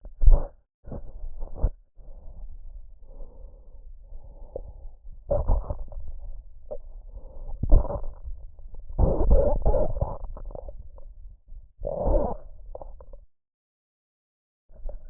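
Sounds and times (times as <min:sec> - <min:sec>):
soft breathing sounds: 0:00.2 - 0:10.8.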